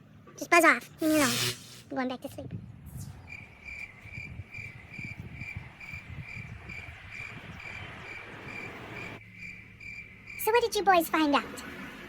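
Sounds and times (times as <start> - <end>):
cricket chirping: 3.2 - 10.6.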